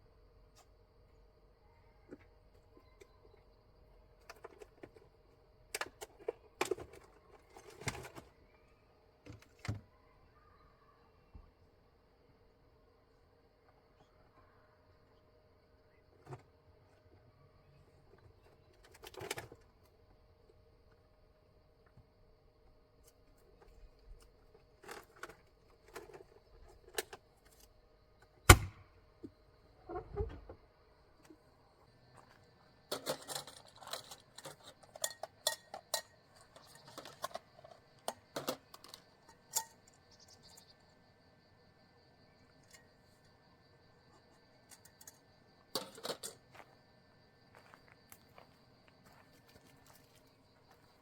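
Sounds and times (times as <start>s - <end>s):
objects clinking and rattling: 32.9s - 39.7s.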